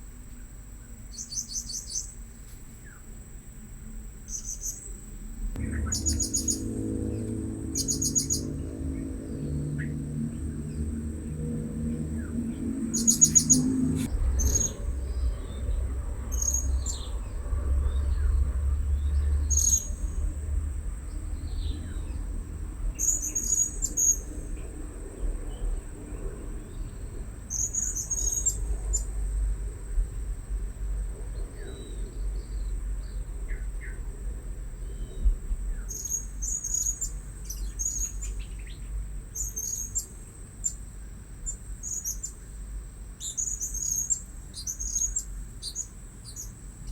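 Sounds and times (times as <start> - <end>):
steady high whine: 0.0 - 27.8
low rumble: 5.1 - 27.4
parrots chirping: 12.9 - 14.8.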